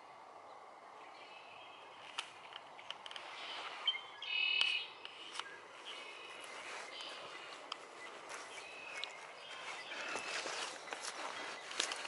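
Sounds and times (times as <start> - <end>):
bird calling: 1.1 - 12.0
footsteps on dry leaves: 5.4 - 12.0.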